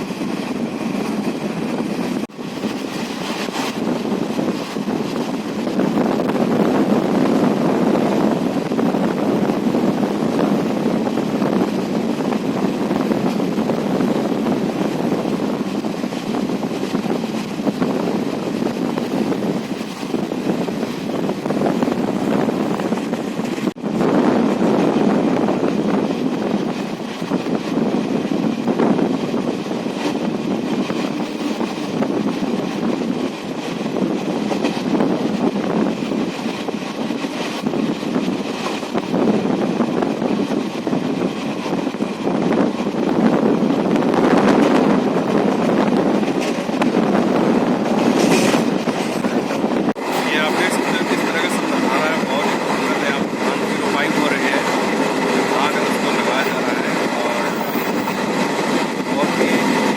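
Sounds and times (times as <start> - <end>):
train rumbling on rails: 0.0 - 59.9
wind across microphone: 0.0 - 59.9.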